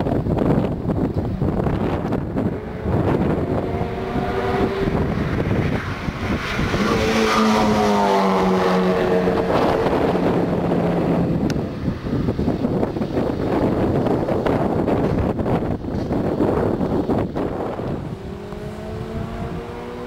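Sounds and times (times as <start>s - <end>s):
wind buffeting microphone: 0.0s - 20.0s
car passing by: 2.4s - 11.4s, 17.6s - 20.0s.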